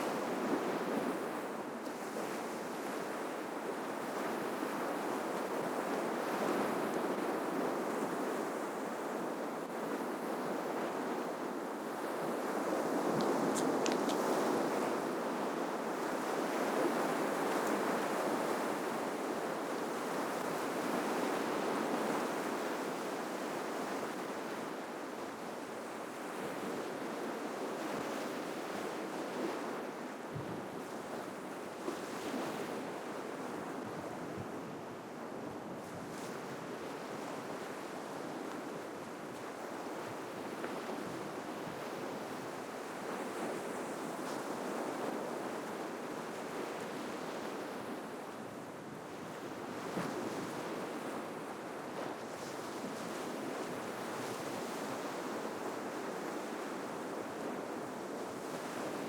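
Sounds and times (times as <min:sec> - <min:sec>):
faint clicks: 0:13.2 - 0:14.3.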